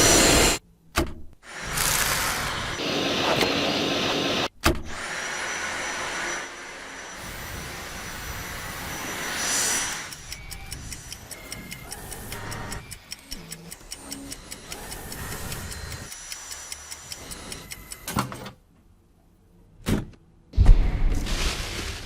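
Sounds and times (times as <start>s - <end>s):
quick ticks: 10.1s - 18.1s.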